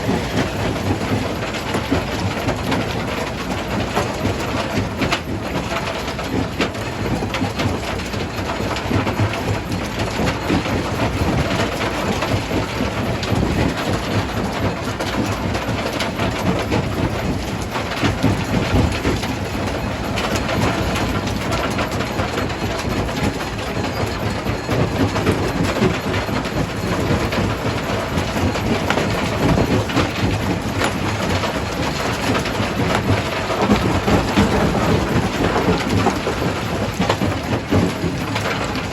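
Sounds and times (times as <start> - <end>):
stone crusher rumbling: 17.6 - 38.9.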